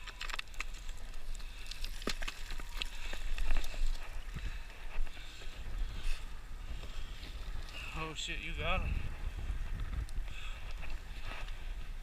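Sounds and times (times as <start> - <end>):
stones clicking and scraping: 0.0 - 8.0.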